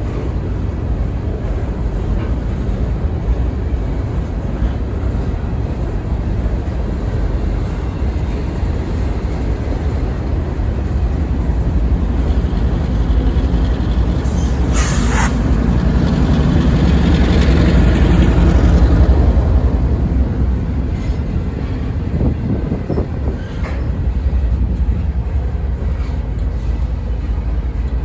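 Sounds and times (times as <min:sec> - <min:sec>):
freight train rumbling by: 0:00.0 - 0:28.0
short hiss: 0:14.4 - 0:15.4.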